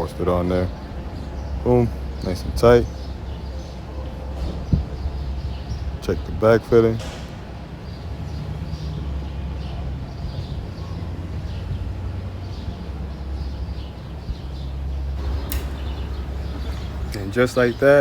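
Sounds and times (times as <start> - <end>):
steady low hum: 0.0 - 18.0
sharp click: 15.3 - 16.0.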